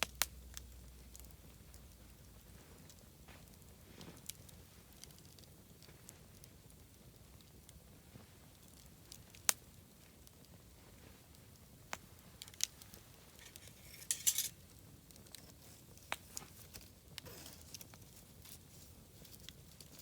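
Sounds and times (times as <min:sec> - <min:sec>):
bonfire crackling and popping: 0:00.0 - 0:20.0.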